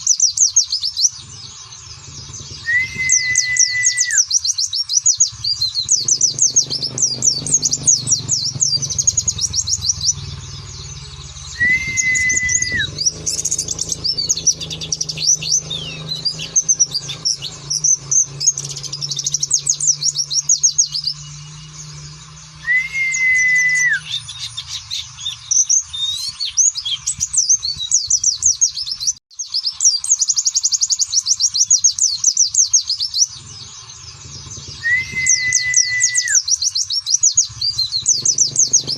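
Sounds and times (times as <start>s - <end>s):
birds twittering trills: 0.0s - 38.9s
whistled falling bird note: 2.5s - 4.3s, 11.5s - 14.2s, 22.6s - 24.2s, 34.8s - 36.5s.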